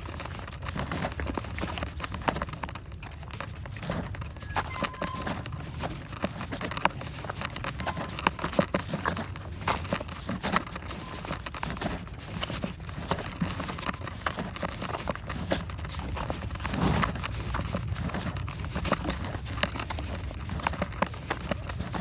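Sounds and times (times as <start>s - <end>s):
bike clicks and knocks: 0.0s - 22.0s.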